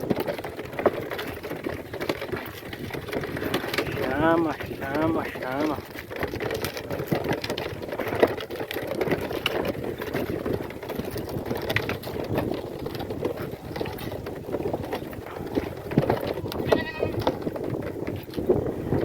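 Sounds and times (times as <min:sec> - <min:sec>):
cart wheels rattling on dirt road: 0:00.0 - 0:19.0.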